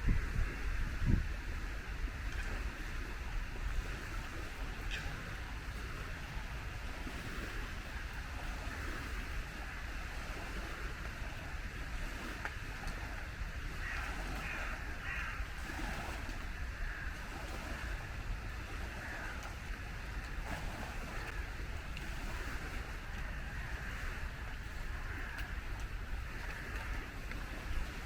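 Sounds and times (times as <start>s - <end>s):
bird calling: 13.8s - 15.5s.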